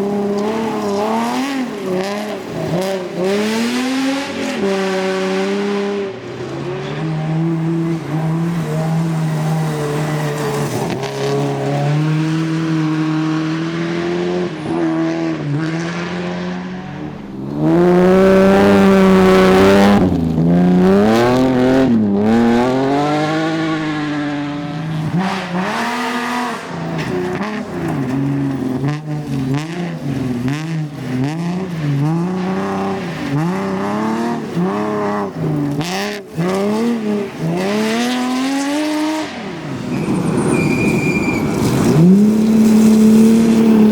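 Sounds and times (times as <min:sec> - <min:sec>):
rally car engine revving: 0:00.0 - 0:43.9.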